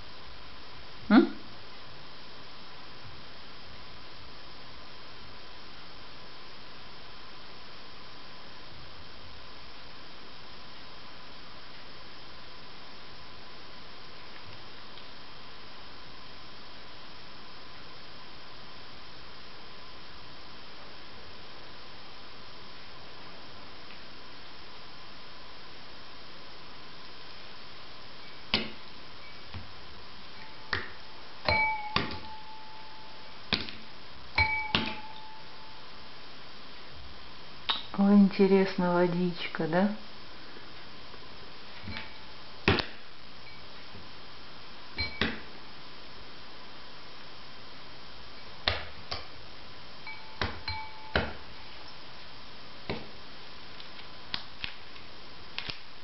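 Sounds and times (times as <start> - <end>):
short ringing tone: 31.5 - 33.4, 34.4 - 35.8, 45.0 - 45.5, 50.1 - 51.4.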